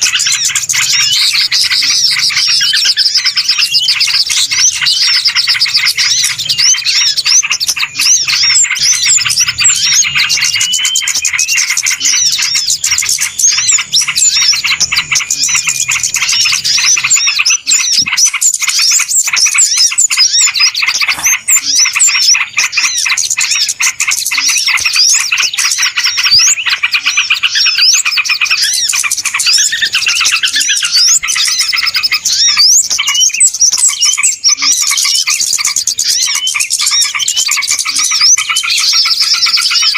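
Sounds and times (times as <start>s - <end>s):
chorus of small birds chirping: 0.0s - 39.9s.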